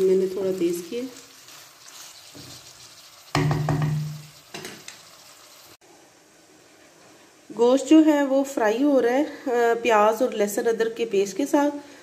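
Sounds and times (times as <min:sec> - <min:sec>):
beef and onions sizzling: 0:00.0 - 0:05.8.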